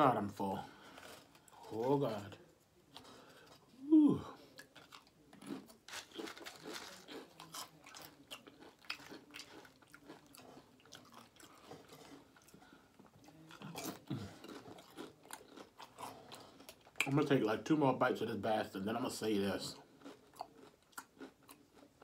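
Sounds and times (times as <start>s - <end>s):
chips crunching: 4.6s - 17.1s, 20.0s - 21.9s.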